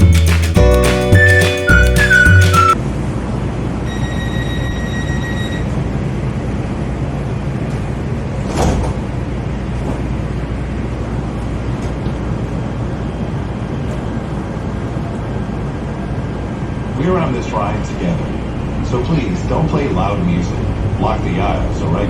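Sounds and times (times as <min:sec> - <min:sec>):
train rumbling: 0:05.7 - 0:22.0.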